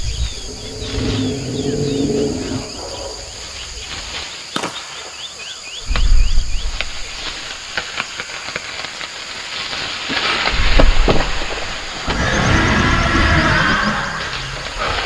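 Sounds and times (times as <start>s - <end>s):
high insect drone: 0.0s - 15.0s
deep low rumble: 10.5s - 15.0s
short rising chirps: 12.0s - 15.0s.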